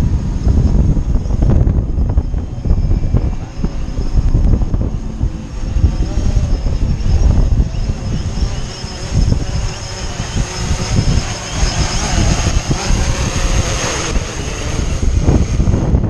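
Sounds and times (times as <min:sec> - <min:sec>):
drone propellers whining: 0:00.0 - 0:16.0
wind buffeting microphone: 0:00.0 - 0:16.0.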